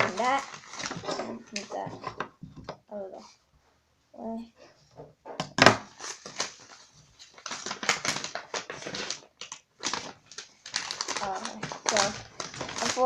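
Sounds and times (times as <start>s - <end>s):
cardboard and paper rustling: 0.0s - 2.8s, 5.6s - 13.0s.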